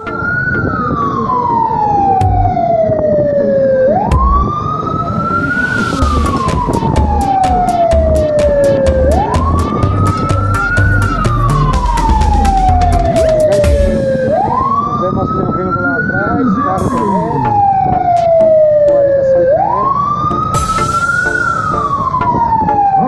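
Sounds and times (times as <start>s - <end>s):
vehicle siren wailing: 0.0s - 23.0s
low thumping: 4.1s - 14.5s.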